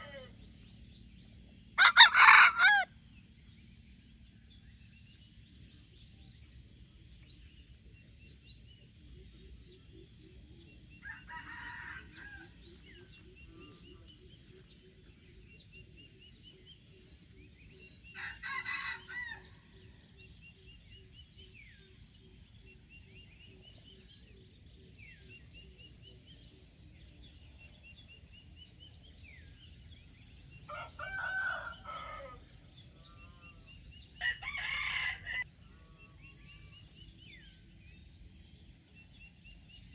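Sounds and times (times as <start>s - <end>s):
rooster crowing: 1.8s - 2.9s, 11.0s - 12.6s, 18.2s - 19.5s, 30.7s - 32.4s, 34.2s - 35.5s.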